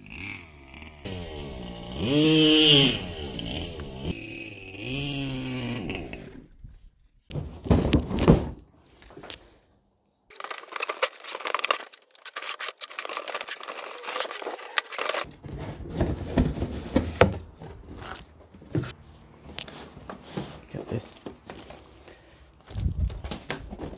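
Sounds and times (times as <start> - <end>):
packaging crinkling and tearing: 10.3 - 15.3.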